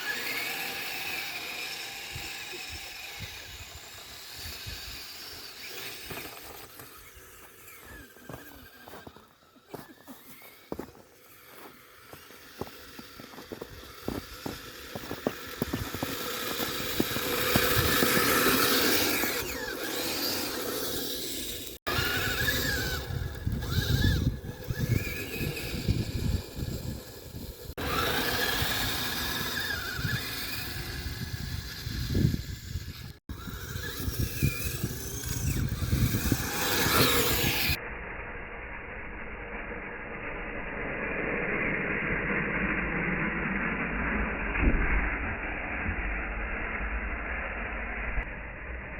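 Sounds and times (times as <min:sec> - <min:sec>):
electric motor whine: 0:00.0 - 0:37.8
dull steady rushing noise: 0:10.8 - 0:48.9
wind noise on microphone: 0:13.5 - 0:19.5, 0:21.9 - 0:37.8, 0:44.3 - 0:45.4.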